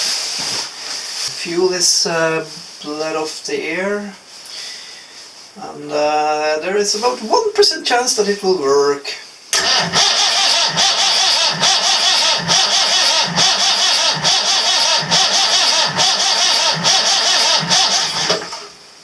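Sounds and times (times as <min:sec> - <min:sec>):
starter motor cranking diesel engine: 0:09.6 - 0:18.8.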